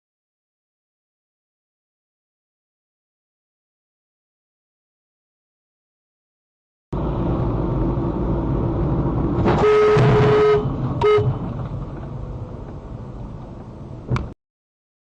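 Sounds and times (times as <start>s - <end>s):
road and engine noise: 6.9s - 14.4s
car horn honking: 9.5s - 11.5s.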